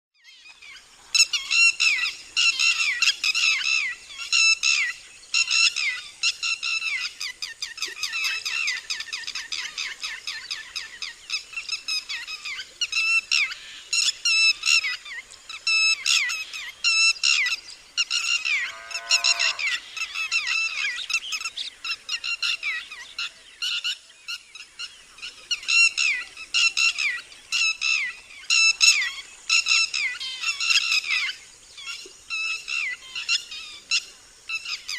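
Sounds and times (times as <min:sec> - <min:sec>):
lapwing alarm calls: 0:08.1 - 0:23.0.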